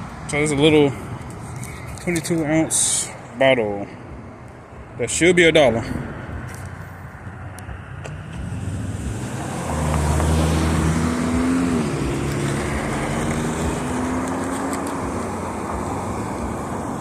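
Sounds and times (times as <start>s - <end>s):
car passing by: 8.2s - 17.0s.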